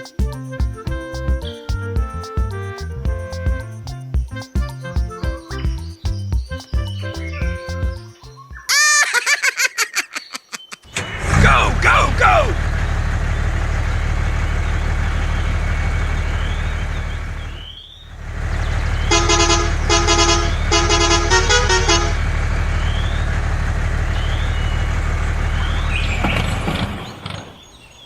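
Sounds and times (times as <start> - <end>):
musical vehicle horn: 0.0 - 8.5, 18.2 - 23.2
truck engine drone: 10.9 - 27.5.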